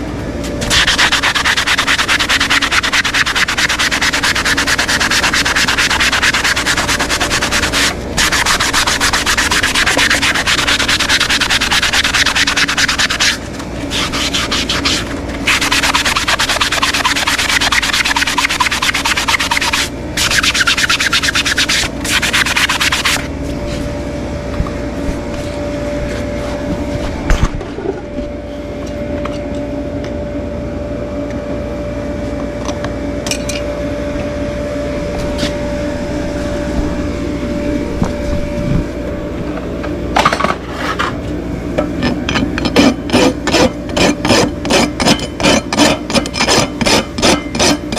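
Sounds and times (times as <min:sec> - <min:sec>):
steady hum with even tone: 0:00.0 - 0:47.9
hoof being sanded: 0:00.5 - 0:23.9, 0:42.0 - 0:47.9.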